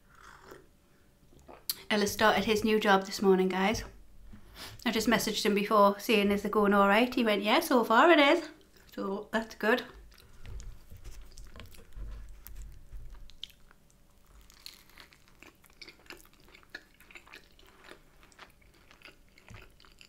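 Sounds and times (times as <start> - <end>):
person chewing a sandwich: 0.1 - 0.7, 10.0 - 20.0
moist mouth clicks and smacks: 10.1 - 13.9
dull low thumps: 10.4 - 13.5.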